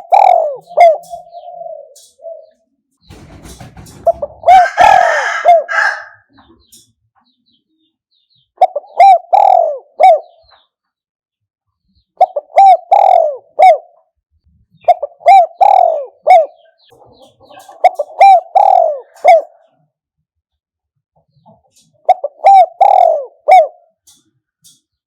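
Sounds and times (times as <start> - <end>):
dove cooing: 0.0 - 6.7, 8.6 - 10.6, 12.2 - 14.1, 14.8 - 19.8, 21.7 - 24.1.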